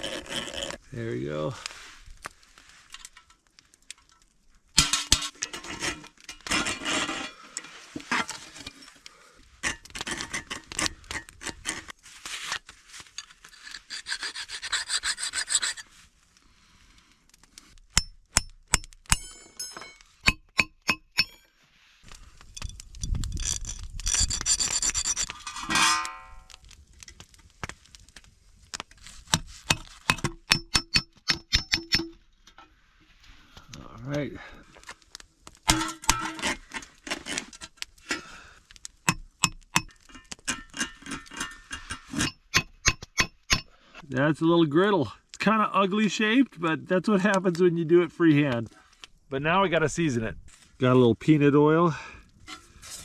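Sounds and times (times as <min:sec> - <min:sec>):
metal scraping and rubbing: 0:04.8 - 0:09.0, 0:13.2 - 0:16.0, 0:23.3 - 0:26.6, 0:40.0 - 0:43.3, 0:52.4 - 0:53.0.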